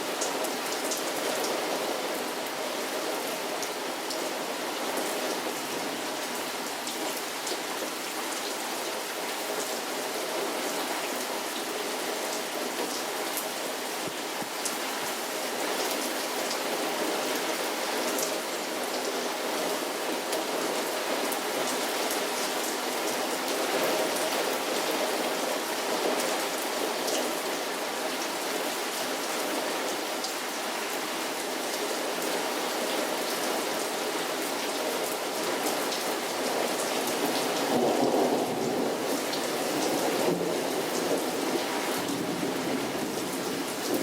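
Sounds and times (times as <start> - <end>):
heavy rain falling: 0.0 - 44.0.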